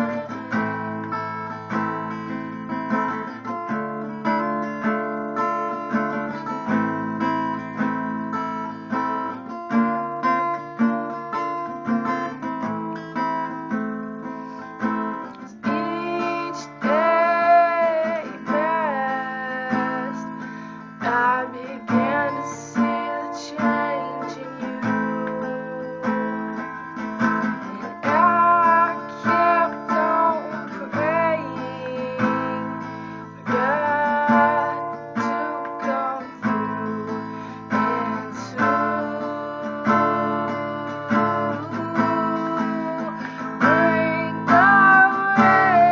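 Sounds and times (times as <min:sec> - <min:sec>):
woman singing: 0:00.0 - 0:01.9, 0:15.2 - 0:45.9
acoustic guitar strumming: 0:00.0 - 0:45.9.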